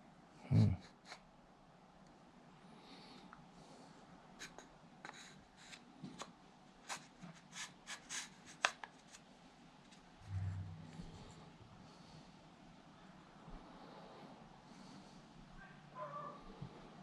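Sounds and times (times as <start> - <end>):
brief low hum: 10.2 - 12.0.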